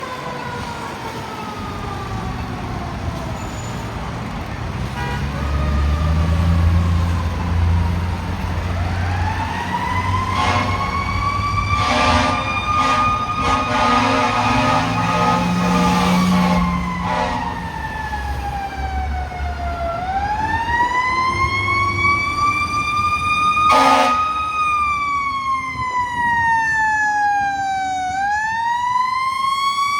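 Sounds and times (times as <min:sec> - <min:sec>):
fire engine siren wailing: 0:00.0 - 0:29.9
truck engine rumbling: 0:00.4 - 0:28.9
air horn blasts: 0:05.0 - 0:05.4, 0:10.2 - 0:17.7, 0:23.7 - 0:24.4.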